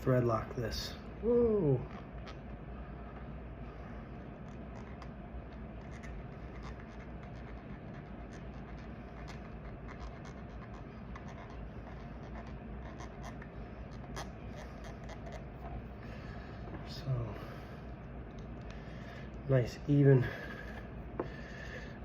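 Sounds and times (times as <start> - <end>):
steady low hum: 0.0 - 22.0
light scratching: 4.2 - 15.9.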